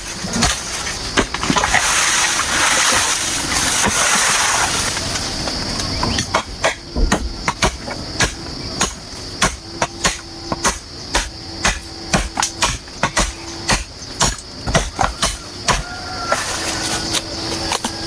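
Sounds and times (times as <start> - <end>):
hand tool striking bamboo: 6.1 - 18.0.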